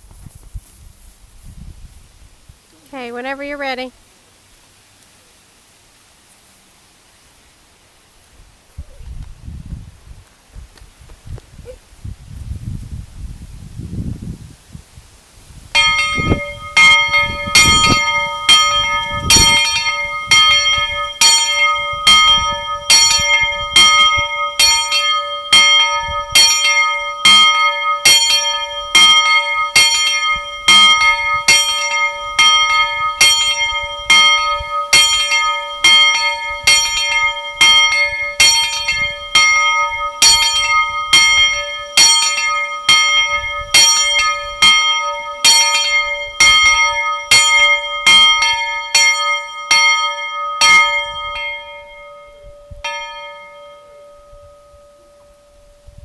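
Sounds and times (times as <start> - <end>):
steam locomotive bell ringing: 15.8 - 56.0.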